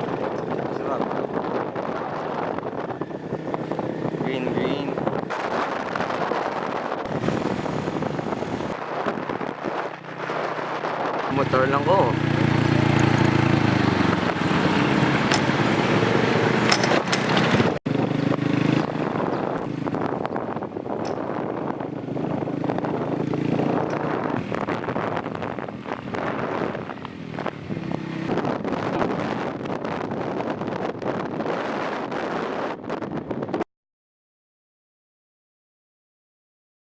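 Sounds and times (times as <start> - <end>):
motorcycle engine running: 0.0 - 5.4, 7.1 - 8.8, 11.3 - 30.5
wind buffeting microphone: 0.0 - 33.6.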